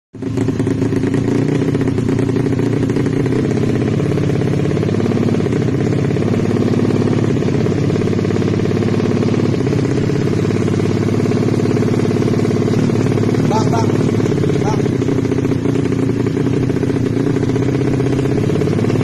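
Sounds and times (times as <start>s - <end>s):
motorcycle engine running steadily: 0.2s - 19.0s.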